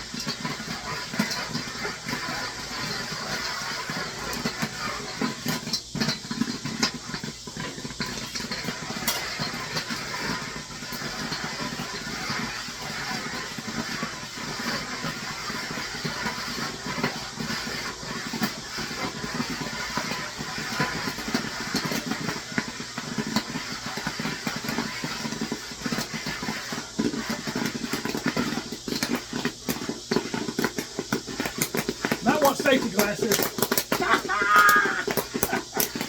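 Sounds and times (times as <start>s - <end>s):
griddle sizzling: 0.0s - 36.0s
popcorn kernels popping: 0.0s - 36.0s.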